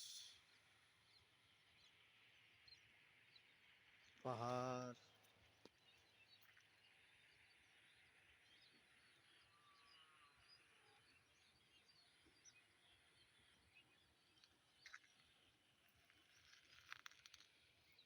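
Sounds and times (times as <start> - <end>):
distant birds chirping: 0.0 - 0.4
faint outdoor ambience: 0.0 - 18.0.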